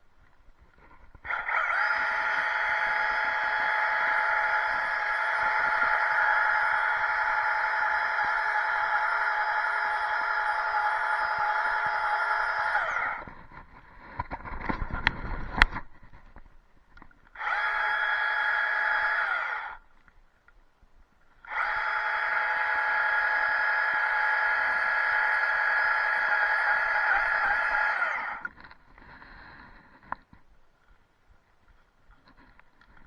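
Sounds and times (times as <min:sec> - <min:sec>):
chainsaw running: 0:01.3 - 0:13.3, 0:17.4 - 0:19.8, 0:21.5 - 0:28.5.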